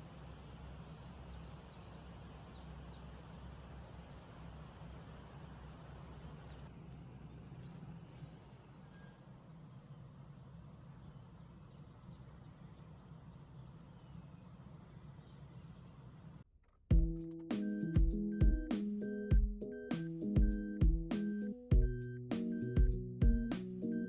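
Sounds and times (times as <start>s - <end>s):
steady low hum and hiss: 0.0s - 16.3s.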